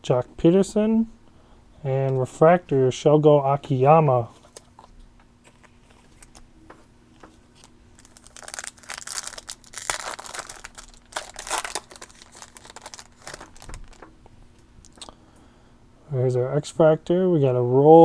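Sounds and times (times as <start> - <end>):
foil wrapper tearing and crinkling: 7.6 - 14.0.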